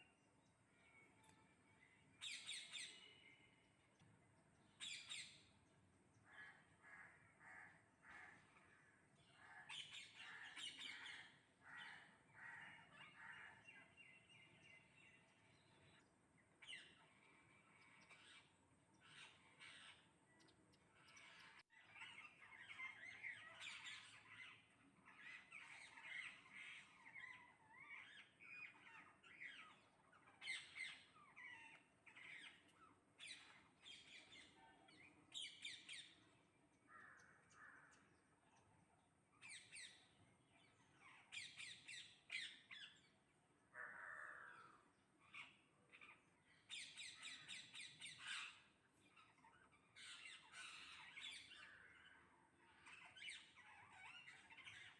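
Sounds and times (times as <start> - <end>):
crow-like caws: 6.3 - 8.9, 11.0 - 13.6, 43.7 - 44.8
parrots squawking and chirping: 45.2 - 54.9.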